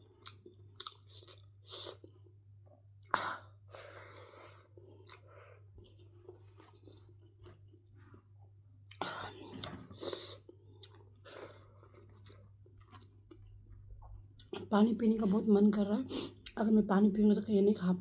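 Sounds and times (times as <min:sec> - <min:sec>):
person chewing food: 0:00.0 - 0:14.6.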